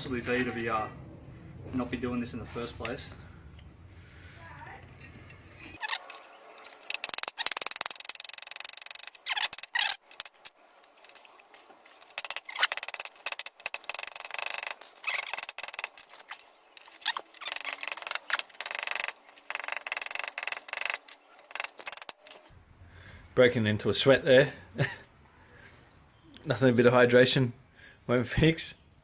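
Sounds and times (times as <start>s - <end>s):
hand tool scraping metal and rubber: 5.0s - 22.5s.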